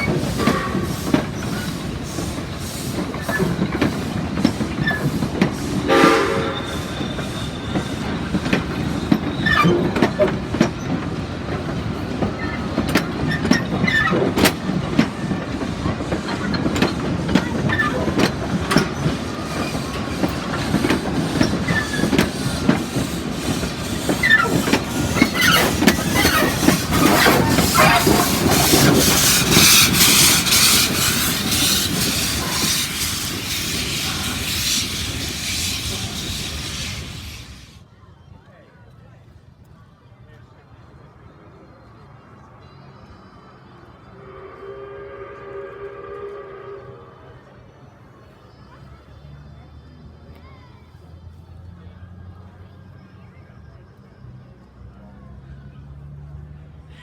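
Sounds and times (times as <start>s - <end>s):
steam train whistle: 0.0s - 3.6s, 5.0s - 9.0s, 20.8s - 37.8s, 44.0s - 47.6s
steam hiss: 0.0s - 9.4s, 15.3s - 37.8s
wheel squeals: 0.0s - 11.4s, 12.0s - 37.8s
train wheels clicking over rails: 0.0s - 37.8s
steady train rumble: 0.0s - 37.9s, 40.6s - 57.0s.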